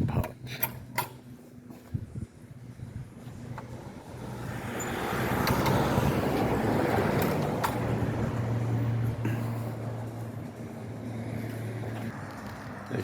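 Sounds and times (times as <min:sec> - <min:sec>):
car driving past: 0:04.0 - 0:10.0.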